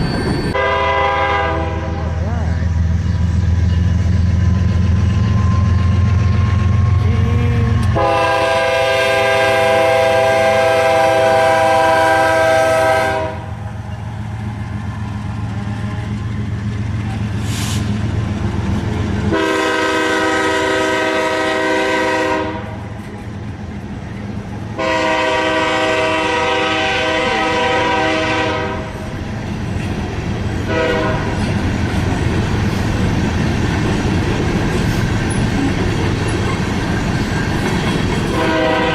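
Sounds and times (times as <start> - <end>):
train rumbling past: 0.0 - 38.9
locomotive air horn blasts: 0.6 - 2.0, 6.9 - 13.6, 19.3 - 22.9, 24.8 - 29.0, 30.7 - 31.4, 38.3 - 38.9.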